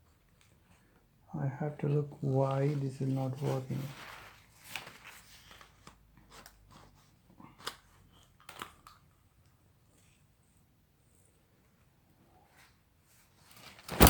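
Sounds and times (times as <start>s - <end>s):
umbrella frame clicking and rustling: 3.4s - 6.0s, 13.4s - 14.0s.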